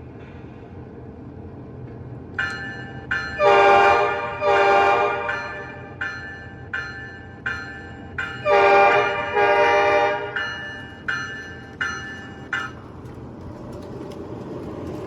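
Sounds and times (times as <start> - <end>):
diesel engine rumble: 0.0 - 15.0
locomotive air horn blasts: 3.4 - 5.9, 8.4 - 10.4.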